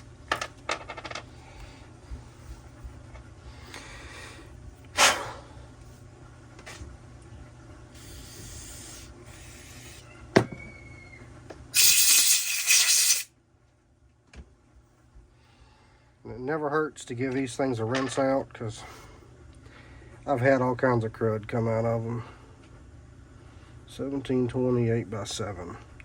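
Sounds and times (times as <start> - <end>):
short hisses: 5.0 - 5.5, 8.0 - 10.0, 11.8 - 13.3
aerosol spray burst: 11.8 - 13.3.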